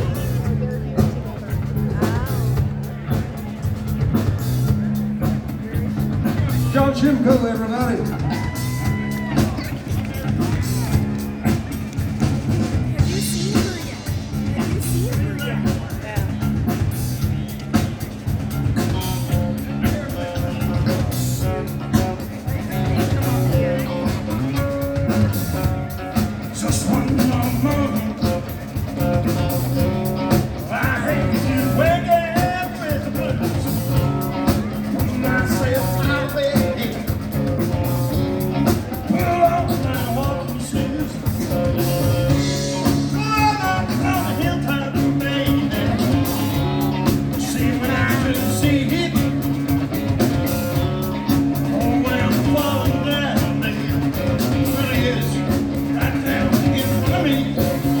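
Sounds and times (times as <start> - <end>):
live rock band playing: 0.0 - 58.0
man singing lead: 6.5 - 9.7, 26.2 - 29.6, 30.2 - 58.0.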